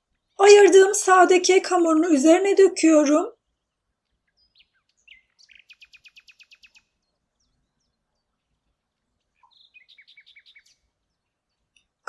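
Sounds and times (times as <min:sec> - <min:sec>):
faint bird song: 0:00.0 - 0:00.5, 0:03.3 - 0:12.0.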